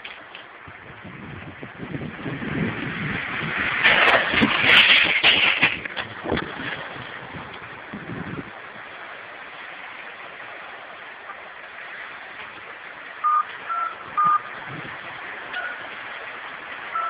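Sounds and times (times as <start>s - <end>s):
steady rushing noise: 0.0s - 17.0s
touch-tone keypad beeps: 13.2s - 14.5s.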